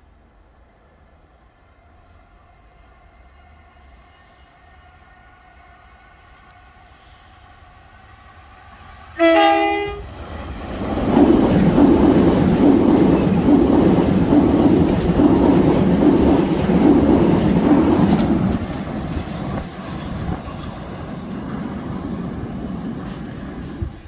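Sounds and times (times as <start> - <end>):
train wheels rumbling on rail: 6.5 - 24.0.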